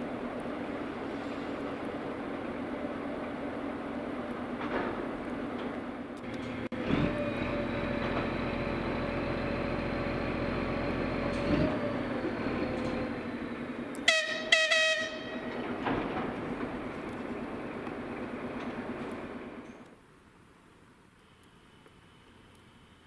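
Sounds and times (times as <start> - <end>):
diesel locomotive running: 0.0 - 20.0
short high horn toots: 14.1 - 15.5.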